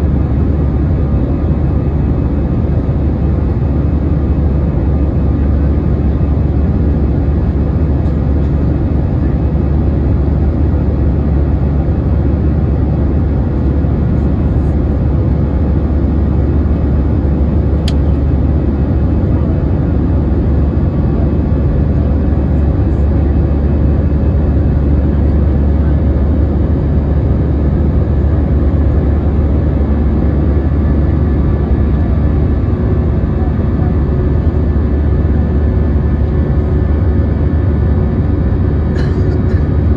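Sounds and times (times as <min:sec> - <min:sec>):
airliner cabin engine drone: 0:00.0 - 0:39.9
sharp click: 0:17.8 - 0:18.2.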